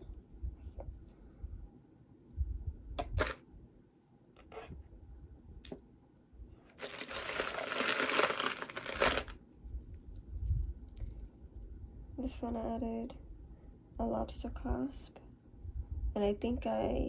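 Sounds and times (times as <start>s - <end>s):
beaded necklaces clinking: 6.7s - 11.3s.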